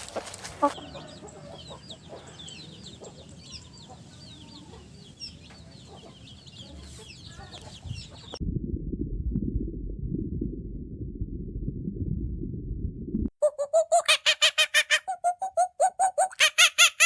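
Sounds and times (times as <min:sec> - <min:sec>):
chickens clucking: 0:00.4 - 0:08.4, 0:13.4 - 0:17.0
muffled low rumble: 0:06.6 - 0:13.3.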